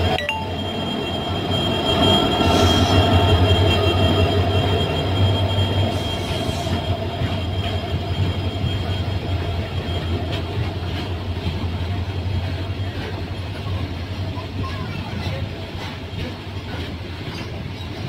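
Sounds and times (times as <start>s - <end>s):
train running gear rumble: 0.0s - 18.0s
wheels clicking over rail joints: 7.0s - 18.0s.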